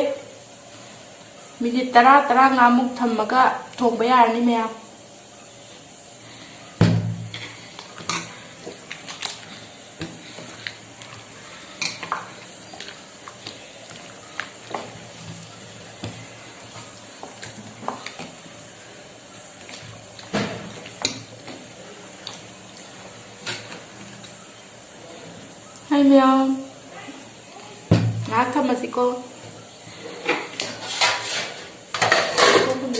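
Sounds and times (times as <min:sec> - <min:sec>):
low sizzle from pot: 0:00.0 - 0:32.9
metal spoon scraping a pot: 0:30.2 - 0:32.6.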